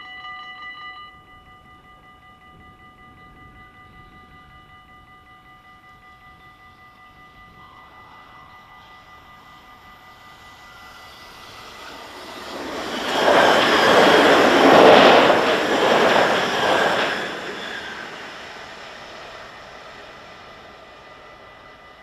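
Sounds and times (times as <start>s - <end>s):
crossing warning bell ringing: 0.0s - 22.0s
train wheels and engine rushing: 7.6s - 22.0s.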